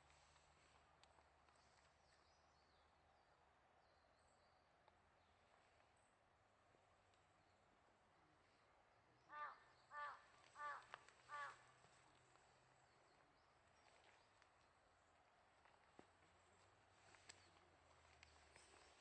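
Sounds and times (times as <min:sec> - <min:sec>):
crow cawing: 0:09.3 - 0:11.9.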